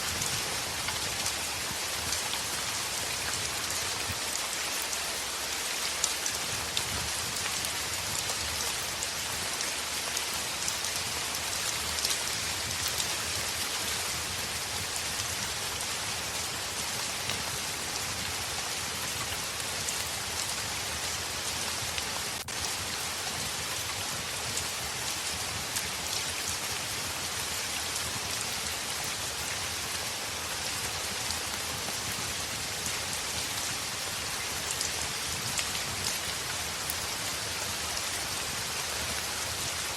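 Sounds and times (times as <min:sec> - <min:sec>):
heavy rain on a window: 0:00.0 - 0:39.9.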